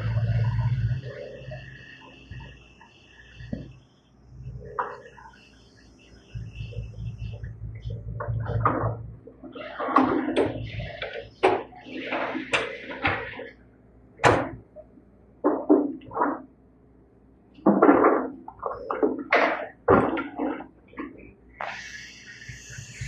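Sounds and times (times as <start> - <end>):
irregular knocks and bangs: 17.6 - 21.1.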